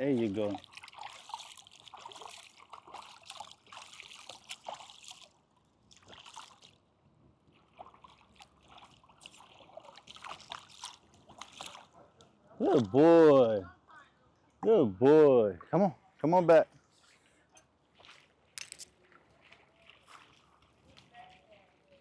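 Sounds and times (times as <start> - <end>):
light splashing of lake water: 0.0 - 13.4, 16.8 - 22.0.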